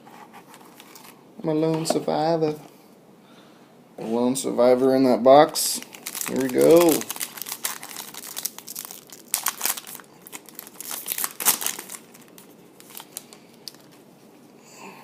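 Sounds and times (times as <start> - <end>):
wrapper tearing and crinkling: 5.7 - 14.0.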